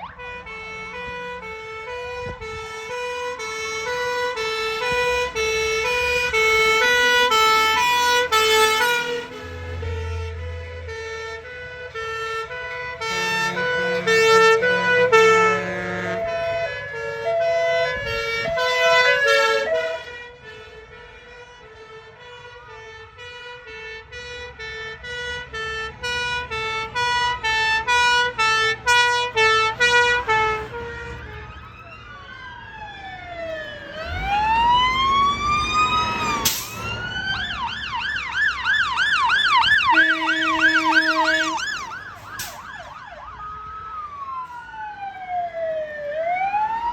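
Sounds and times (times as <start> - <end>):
fire engine sirens: 0.0 - 46.9
horn blast: 2.5 - 21.0, 39.8 - 42.8.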